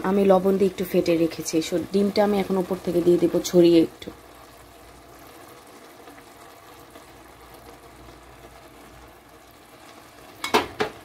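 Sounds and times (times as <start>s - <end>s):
vegetables sizzling in frying pan: 0.0s - 11.0s.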